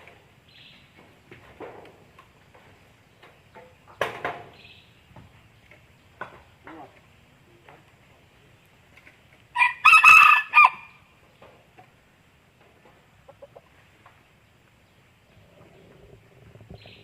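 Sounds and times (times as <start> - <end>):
rooster crowing: 9.6 - 11.0.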